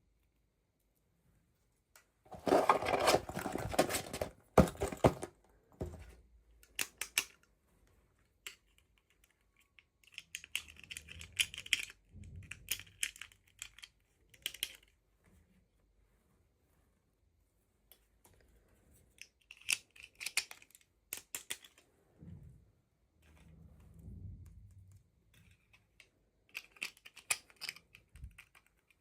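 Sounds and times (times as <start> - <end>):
packaging rustling and tearing: 2.3 - 5.3.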